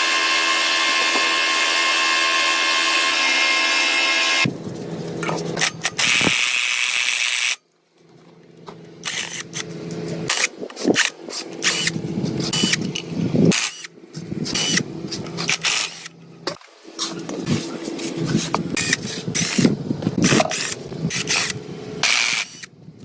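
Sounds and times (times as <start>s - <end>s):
power tool hissing: 0.0s - 4.5s, 18.8s - 22.7s
clicks and scrapes of parts: 4.7s - 22.7s.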